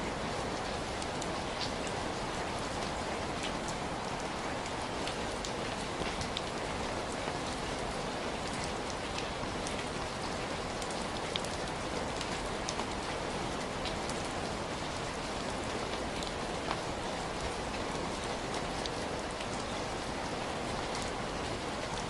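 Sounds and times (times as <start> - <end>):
heavy rain falling: 0.0 - 22.0
raindrops ticking on a surface: 0.1 - 22.0.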